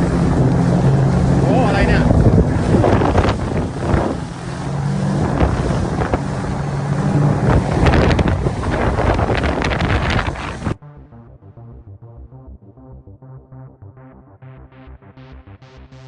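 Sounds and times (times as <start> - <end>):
water splashing: 0.0 - 10.8
wind buffeting microphone: 0.0 - 10.8
boat engine running: 0.0 - 16.0.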